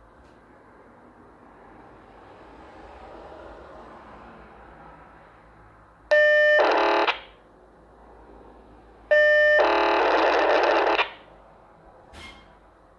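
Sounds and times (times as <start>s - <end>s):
pager data bursts: 9.1s - 11.2s.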